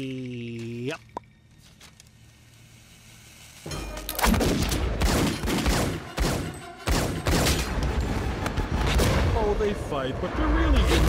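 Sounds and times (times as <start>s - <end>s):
rapid handgun shots: 4.2s - 7.8s.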